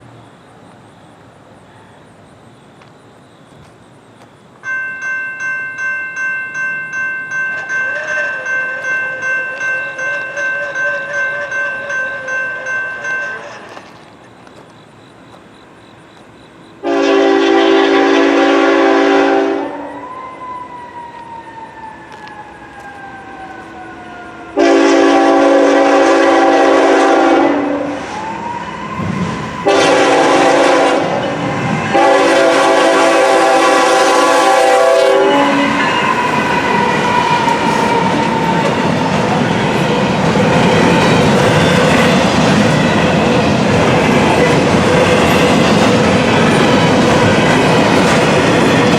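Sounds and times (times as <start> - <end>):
train wheel and rail clatter: 2.8 - 19.2, 28.0 - 48.9
locomotive air horn: 16.8 - 20.0, 24.6 - 28.2, 29.0 - 38.8.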